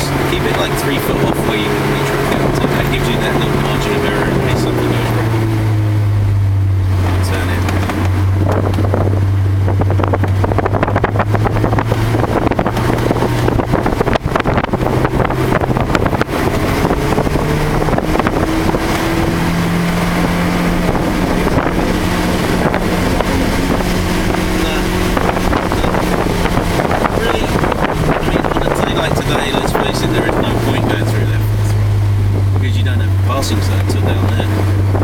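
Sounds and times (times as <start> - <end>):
car engine pulling hard: 0.0 - 35.0
wind and wet road noise: 0.0 - 35.0.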